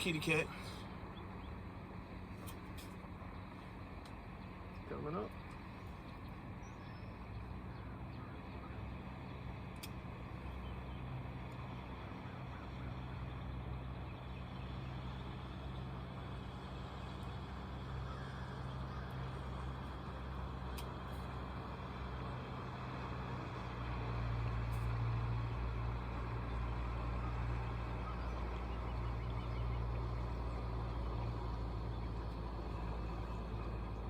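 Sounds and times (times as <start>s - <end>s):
boat motor humming: 0.0s - 34.0s.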